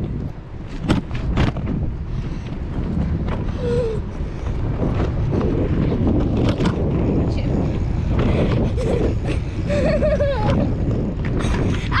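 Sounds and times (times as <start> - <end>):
bicycle clicks and rattles: 0.0 - 7.2, 8.1 - 12.0
wind buffeting microphone: 0.0 - 12.0.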